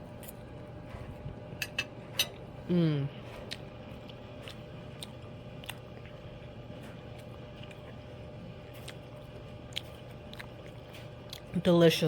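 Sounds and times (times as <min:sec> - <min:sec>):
low background hum: 0:00.0 - 0:12.0
quiet chewing: 0:03.2 - 0:11.7.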